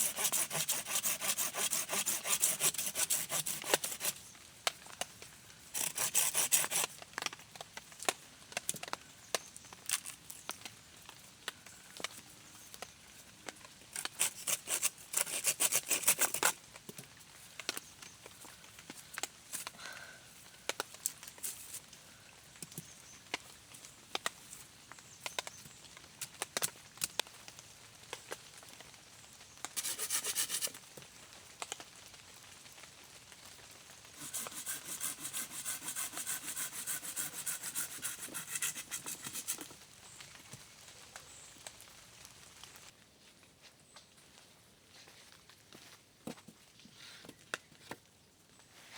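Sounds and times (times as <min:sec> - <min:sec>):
rasping on wood: 0:00.0 - 0:04.2, 0:05.8 - 0:06.9, 0:14.0 - 0:16.5, 0:29.8 - 0:30.8, 0:34.2 - 0:39.7.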